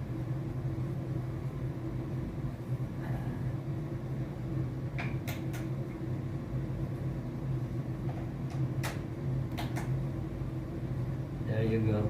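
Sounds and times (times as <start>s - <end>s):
steady low hum: 0.0s - 12.0s
sharp clicks: 8.5s - 9.9s.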